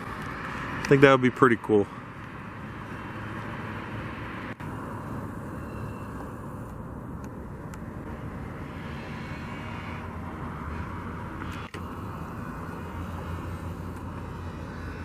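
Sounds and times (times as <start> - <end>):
distant engine rumble: 0.0 - 15.0
faint steady whine: 4.4 - 15.0.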